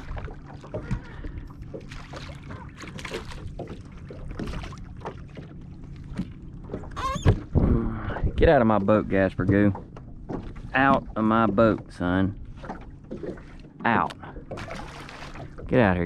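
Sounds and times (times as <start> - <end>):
fish flopping in boat: 0.0 - 8.4, 9.1 - 15.7
high squeak: 7.0 - 7.4.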